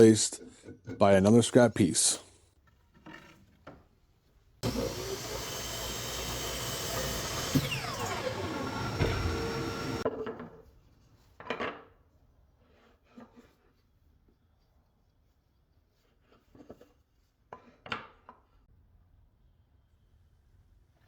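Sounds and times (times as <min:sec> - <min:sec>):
power tool cutting wood: 0:04.6 - 0:10.0.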